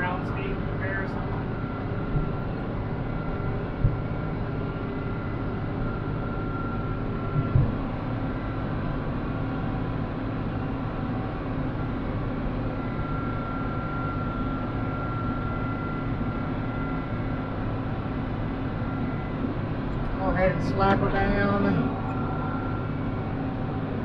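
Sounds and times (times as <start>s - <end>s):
high whine: 0.0s - 9.8s, 11.8s - 24.0s
brief thump: 7.4s - 7.8s.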